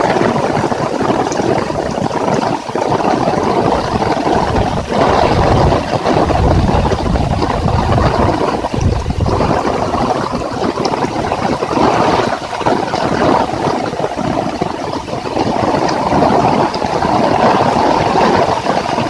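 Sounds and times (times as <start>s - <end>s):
heavy rain pouring: 0.0s - 19.0s
wind gusting on microphone: 0.0s - 19.0s.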